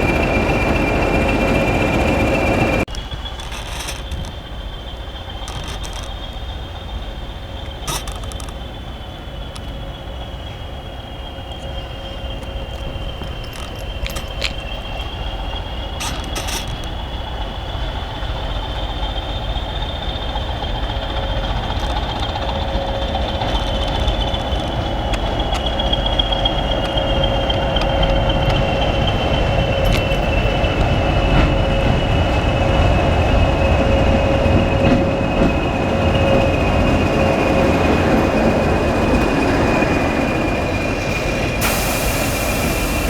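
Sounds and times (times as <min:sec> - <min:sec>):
train wheels rumbling on track: 0:00.0 - 0:43.0.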